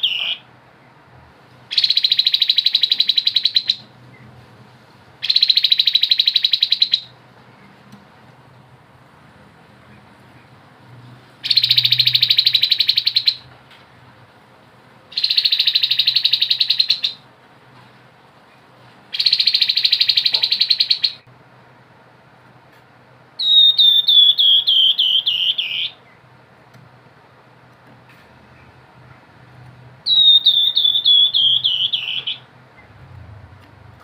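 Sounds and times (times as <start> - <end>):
bird buzzy trills: 0.0 - 0.4, 11.4 - 13.4, 15.1 - 17.2, 30.0 - 33.0
descending whistled bird notes: 0.0 - 0.5, 11.4 - 13.4, 15.2 - 17.2, 19.2 - 21.2, 23.4 - 26.0, 30.1 - 32.9.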